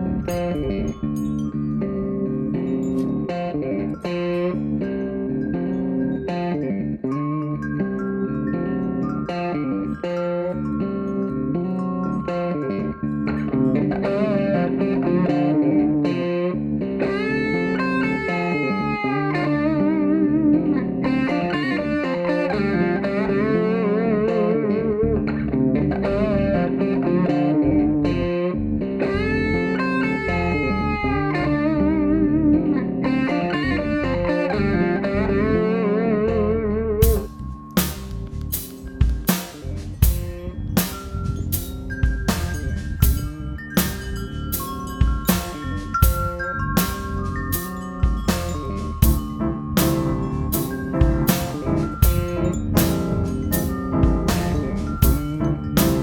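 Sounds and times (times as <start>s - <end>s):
instrumental guitar music: 0.0s - 56.0s
drum hits: 37.0s - 56.0s.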